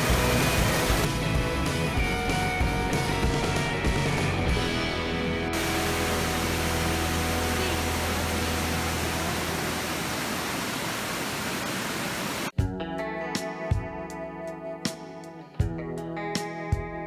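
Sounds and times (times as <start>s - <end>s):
water rushing over weir: 0.0s - 1.2s, 5.4s - 12.5s.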